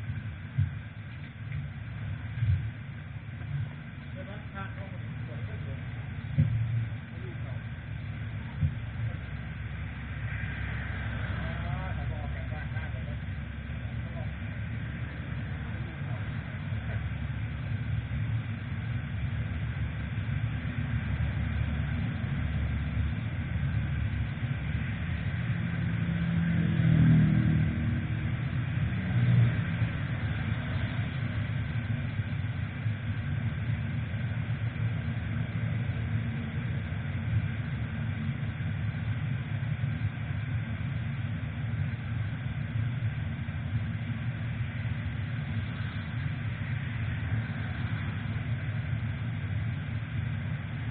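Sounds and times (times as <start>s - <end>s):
motorcycle engine running: 0.0s - 50.9s
wind and road noise: 0.0s - 50.9s.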